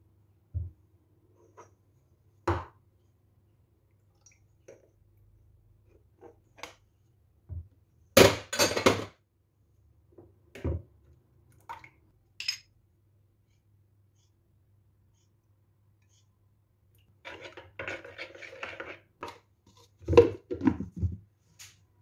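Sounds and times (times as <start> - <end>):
dishes knocking and clinking: 8.2 - 9.2.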